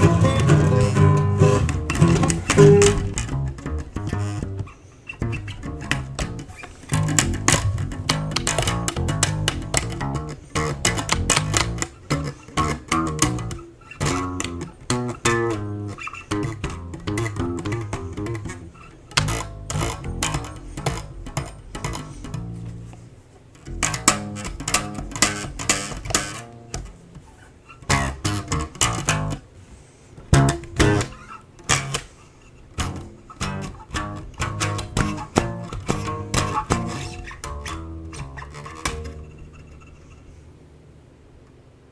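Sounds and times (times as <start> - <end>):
bass line: 0.0 - 23.0, 23.6 - 26.4, 30.4 - 32.0, 32.8 - 40.0
strummed guitar: 0.0 - 29.5, 30.2 - 40.4.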